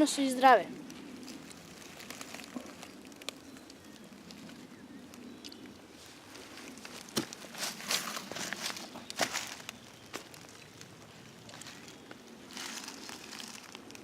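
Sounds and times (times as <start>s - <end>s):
leaves and undergrowth rustling: 0.0s - 14.0s.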